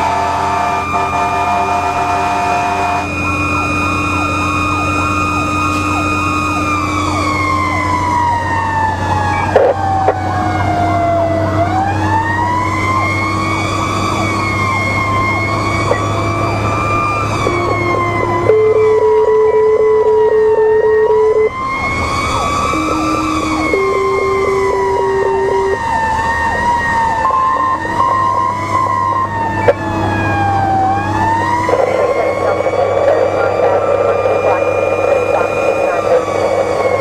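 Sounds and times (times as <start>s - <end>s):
horn blasts: 0.0s - 4.6s, 22.6s - 25.8s
fire engine droning: 0.0s - 37.0s
long wailing siren: 0.0s - 37.0s
rapid yelping siren: 0.0s - 37.0s.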